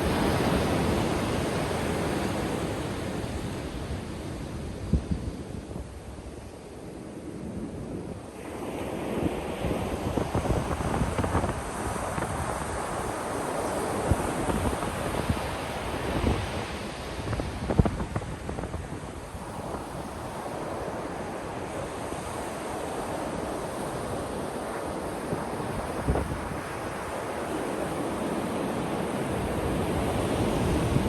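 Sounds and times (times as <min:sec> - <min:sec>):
wind thumps on microphone: 0:17.2 - 0:19.0.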